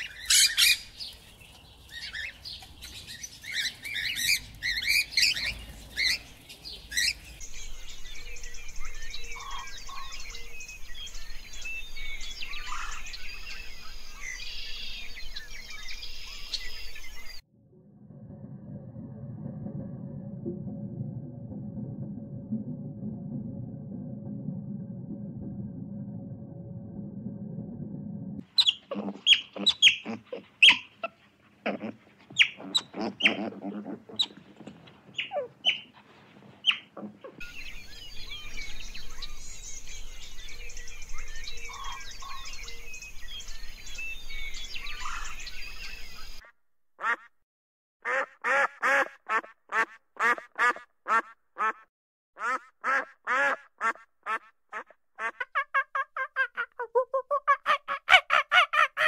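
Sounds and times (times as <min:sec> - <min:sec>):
small birds chirping: 0:00.0 - 0:17.4, 0:28.4 - 0:36.0, 0:36.6 - 0:46.4
otter chirps and squeaks: 0:28.6 - 0:31.2, 0:32.3 - 0:34.4, 0:35.1 - 0:35.9.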